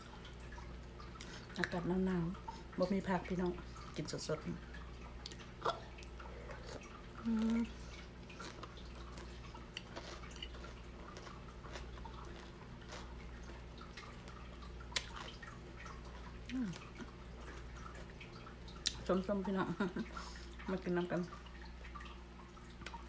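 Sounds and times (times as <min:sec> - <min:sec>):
steady low hum: 0:00.0 - 0:23.0
person humming mm: 0:06.3 - 0:07.8
wet mouth clicks from chewing: 0:08.3 - 0:15.5, 0:18.8 - 0:19.0, 0:22.8 - 0:23.0.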